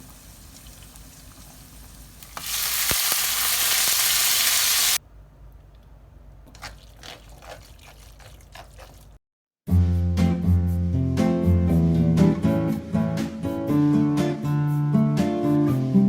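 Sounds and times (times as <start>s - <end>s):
meat sizzling in a frying pan: 0.0s - 5.0s.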